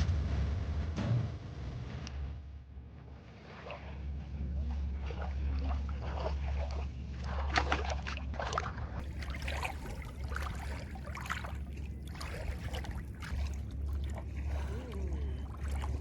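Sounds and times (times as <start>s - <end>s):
steady low hum: 0.0s - 16.0s
water sloshing and splashing: 3.2s - 16.0s.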